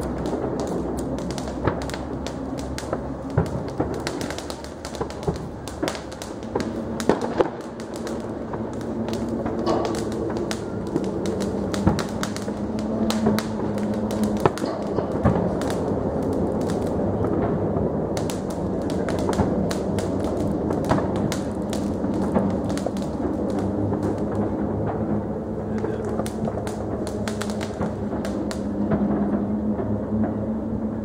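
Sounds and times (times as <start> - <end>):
distant fireworks popping: 0.0 - 31.0
loud fireworks bangs: 0.0 - 31.0.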